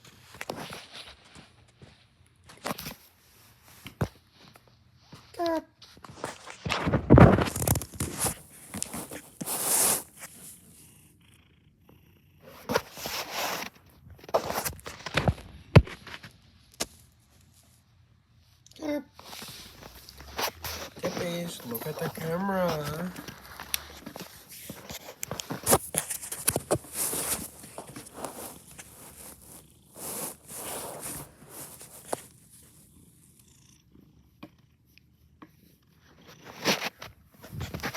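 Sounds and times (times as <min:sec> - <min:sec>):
cat purring: 0:19.4 - 0:36.6.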